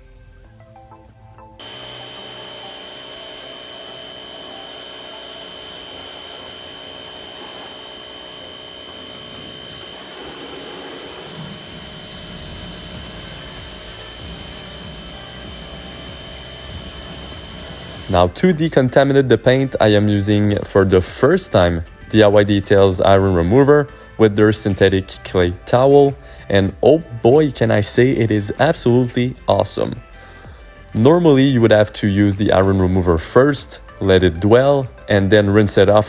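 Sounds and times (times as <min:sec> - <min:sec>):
quiet music: 0:00.0 - 0:36.0
electric motor machine whining: 0:01.6 - 0:18.4.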